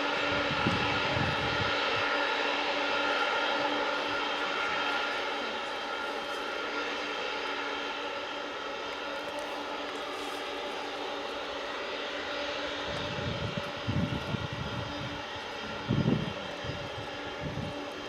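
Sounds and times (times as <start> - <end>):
jet engines whining: 0.0 - 18.0.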